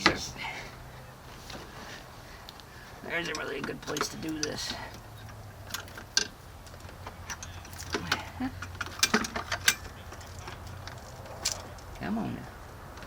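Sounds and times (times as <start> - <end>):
hand tools clicking on metal: 3.2 - 12.0.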